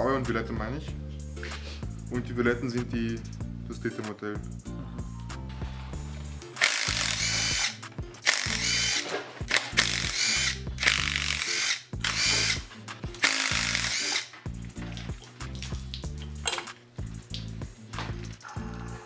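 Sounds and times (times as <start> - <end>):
power tool whining: 6.6 - 14.3.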